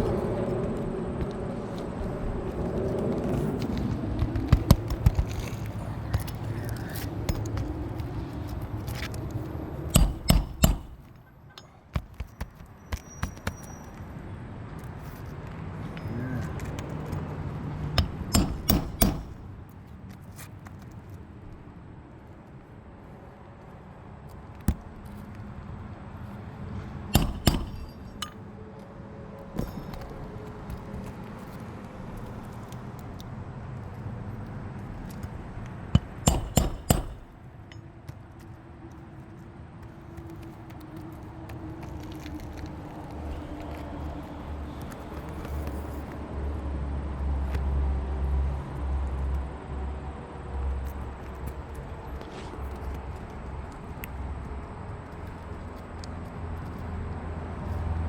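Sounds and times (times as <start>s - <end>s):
hand tools clinking on roof: 9.9s - 12.2s, 18.0s - 19.5s, 27.2s - 28.4s, 36.0s - 37.9s
hammer driving nails into shingles: 9.9s - 12.4s, 18.0s - 19.5s, 27.1s - 28.4s, 36.0s - 37.4s.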